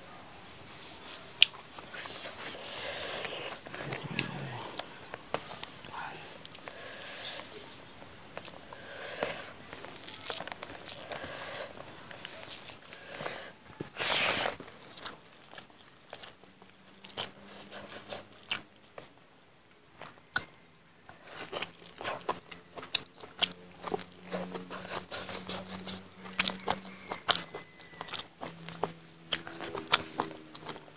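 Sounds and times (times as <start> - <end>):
wet chewing mouth sounds: 1.4 - 19.2, 20.0 - 30.9.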